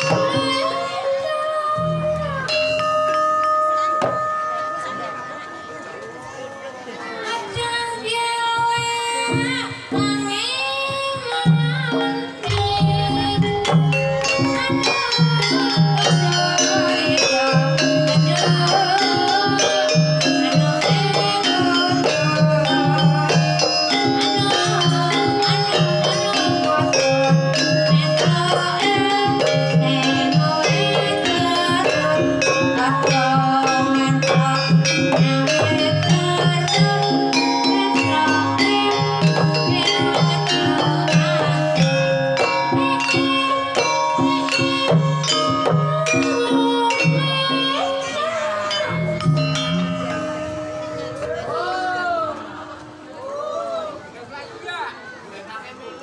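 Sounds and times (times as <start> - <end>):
woman singing: 0.0 - 5.2, 7.0 - 52.7
metallophone tones: 0.0 - 7.7, 11.2 - 53.6
gamelan ensemble playing: 0.0 - 8.0, 11.2 - 53.8
drum beat: 11.5 - 47.8.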